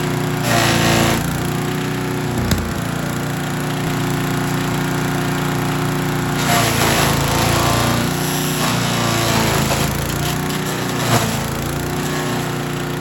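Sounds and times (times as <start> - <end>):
chipper shredder engine running: 0.0 - 13.0
rough chipping noise: 2.2 - 3.4.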